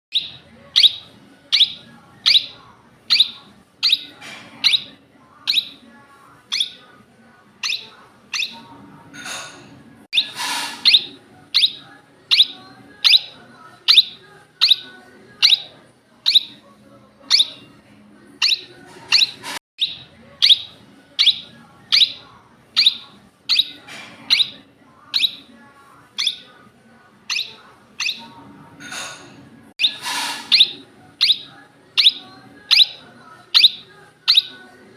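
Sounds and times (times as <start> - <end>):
parakeet calling: 0.1 - 5.9, 6.5 - 6.9, 7.6 - 9.4, 10.1 - 16.6, 17.3 - 17.7, 18.4 - 25.6, 26.2 - 26.5, 27.2 - 29.1, 29.8 - 34.8
parakeet screeches: 6.5 - 6.8, 10.2 - 15.7, 16.3 - 16.6, 18.4 - 25.5, 26.2 - 26.5, 27.3 - 34.7.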